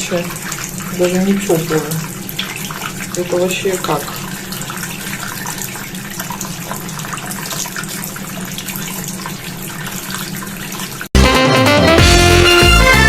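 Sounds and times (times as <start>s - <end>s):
music: 11.2s - 13.0s.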